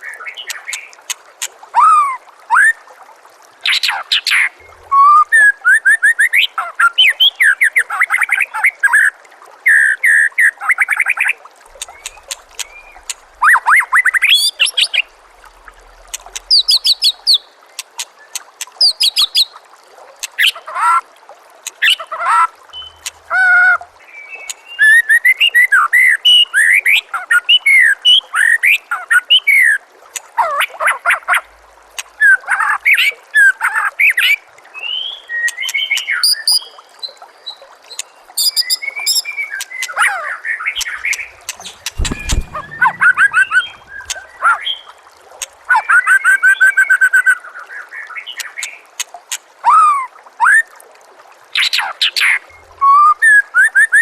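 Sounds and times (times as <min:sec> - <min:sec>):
faint water trickling: 0:00.0 - 0:54.0
bird singing whistles and trills: 0:22.7 - 0:23.1, 0:38.4 - 0:39.8, 0:40.8 - 0:44.9.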